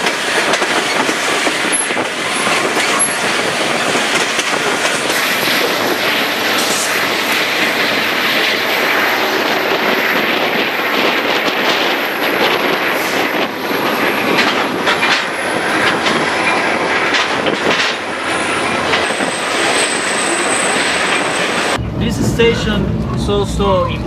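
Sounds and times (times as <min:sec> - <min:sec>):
wheels clicking on track: 0:00.0 - 0:21.8
train rumble heard on board: 0:00.0 - 0:24.0.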